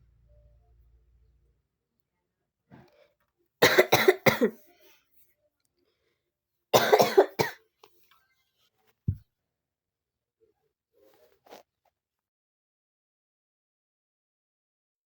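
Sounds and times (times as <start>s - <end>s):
person coughing: 3.6s - 4.6s, 6.8s - 7.6s.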